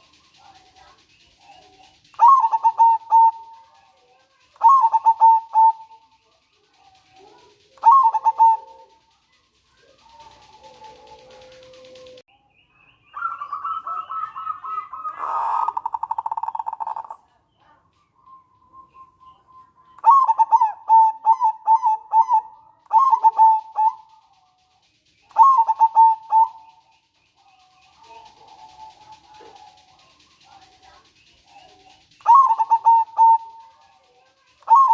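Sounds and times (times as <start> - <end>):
dove cooing: 0.0 - 12.2, 13.2 - 24.6, 25.2 - 34.9
dove rattling trill: 0.0 - 12.3, 13.1 - 34.9.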